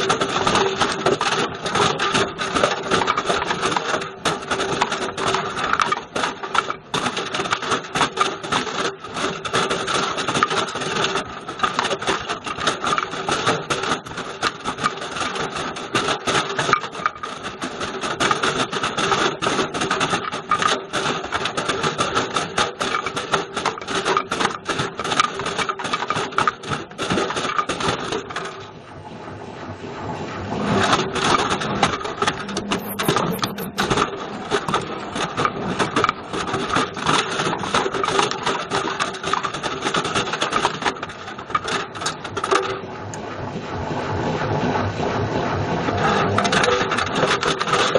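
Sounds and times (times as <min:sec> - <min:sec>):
video recorder clattering in washing machine: 0:00.0 - 0:28.6, 0:34.6 - 0:42.9, 0:46.0 - 0:47.9.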